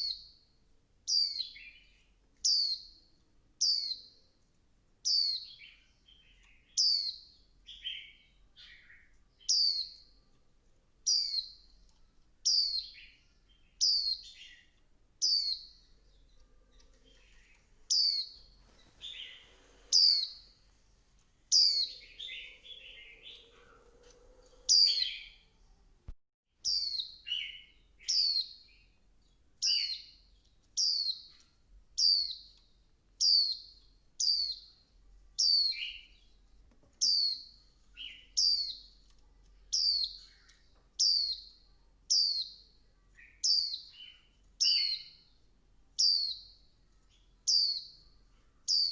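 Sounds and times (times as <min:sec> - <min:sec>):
bird chirping: 0:00.0 - 0:04.4, 0:05.0 - 0:25.9, 0:26.6 - 0:48.9
bird twittering: 0:19.0 - 0:20.5, 0:21.5 - 0:25.4.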